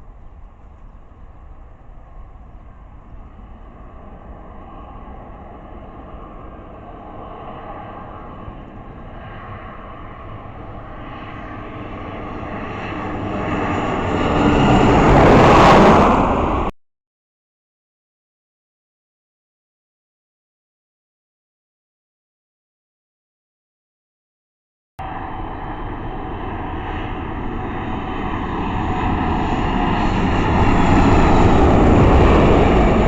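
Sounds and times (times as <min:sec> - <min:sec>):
airliner engine noise: 0:00.0 - 0:16.8, 0:25.0 - 0:33.0.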